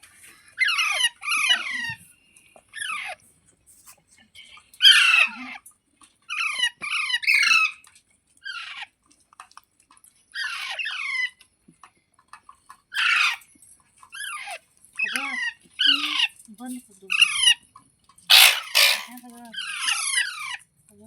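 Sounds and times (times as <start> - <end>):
parakeet squawking: 4.8 - 5.3, 6.3 - 7.8, 12.9 - 13.4, 18.3 - 20.6.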